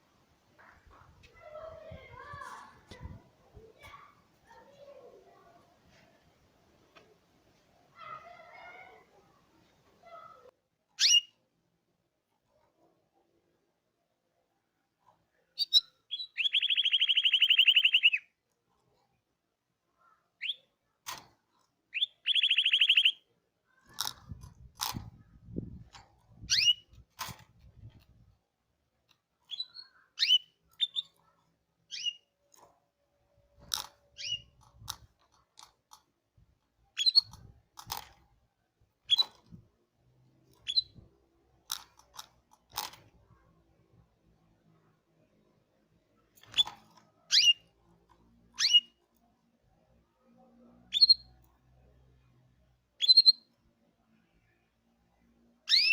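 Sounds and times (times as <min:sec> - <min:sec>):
short bird chirps: 0:15.6 - 0:18.3, 0:21.9 - 0:23.3, 0:29.5 - 0:31.2, 0:48.6 - 0:49.0, 0:53.0 - 0:53.5, 0:55.7 - 0:55.9
canary rolling trill: 0:21.9 - 0:23.2.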